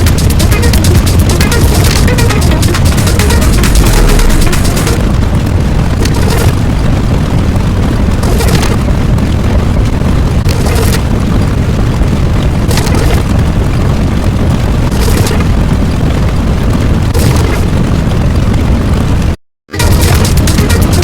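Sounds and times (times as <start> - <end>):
hissing burst: 0.0 - 5.1
low explosion rumble: 0.0 - 21.0.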